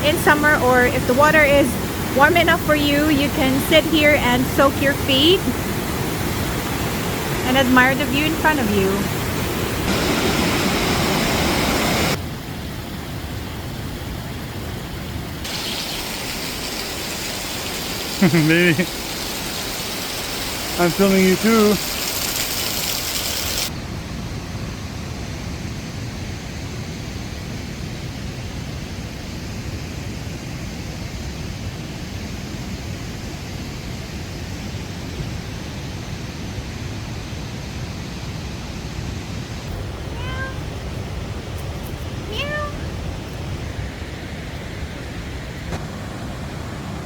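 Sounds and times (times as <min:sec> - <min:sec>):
steady rushing noise: 0:00.0 - 0:12.8
cat meowing: 0:40.1 - 0:40.7, 0:42.2 - 0:42.9.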